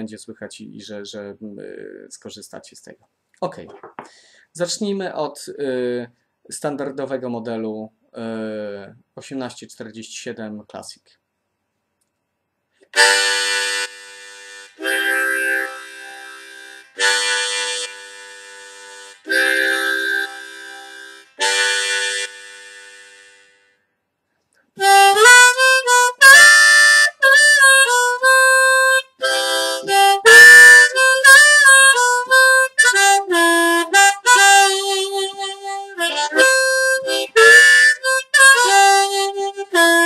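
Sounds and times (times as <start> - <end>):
harmonica playing: 12.9 - 23.8, 24.8 - 40.0.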